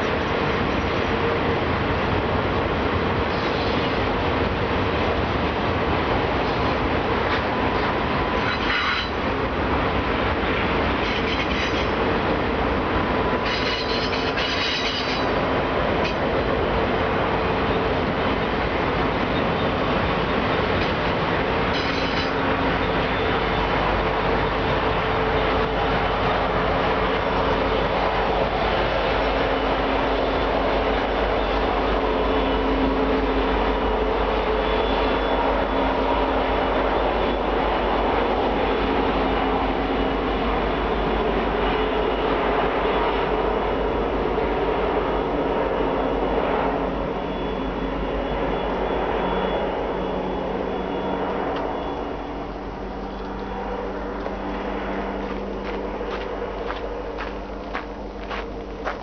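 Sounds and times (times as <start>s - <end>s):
freight cars rumbling on rails: 0.0s - 59.0s
high-pitched wheel squeal: 8.4s - 9.2s, 13.4s - 15.4s, 21.7s - 23.4s.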